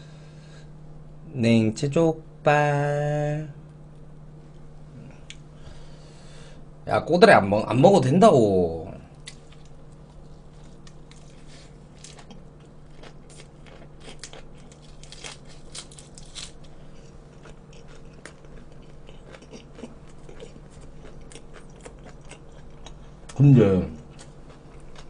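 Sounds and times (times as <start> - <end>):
crisp chewing crunches: 9.2 - 23.4, 24.0 - 25.0.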